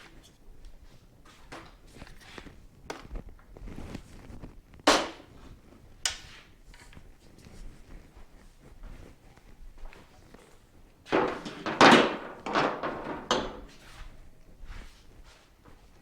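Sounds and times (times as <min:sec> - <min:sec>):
sharp loud metal knocks: 0:11.1 - 0:13.7.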